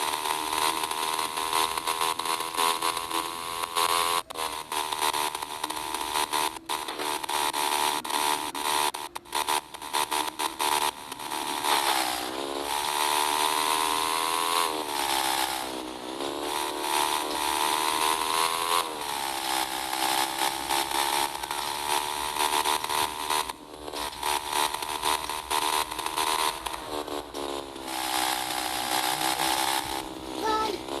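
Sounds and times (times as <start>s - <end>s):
small motorcycle engine revving: 0.0s - 31.0s.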